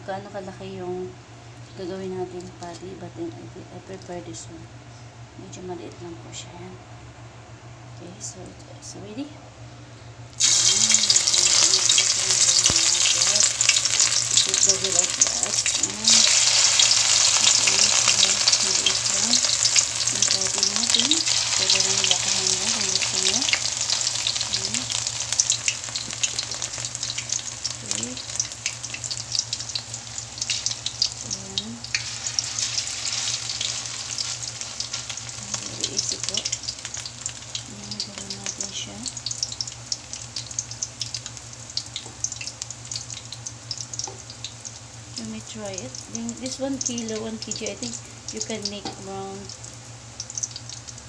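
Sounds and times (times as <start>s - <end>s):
patties sizzling in hot oil: 10.4s - 51.0s.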